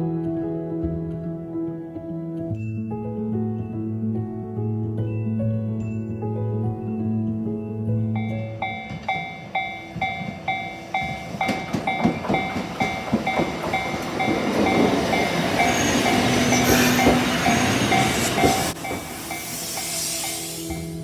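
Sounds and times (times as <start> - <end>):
level crossing warning bell: 8.2 - 19.6
train wheels clicking over joints: 8.6 - 21.0.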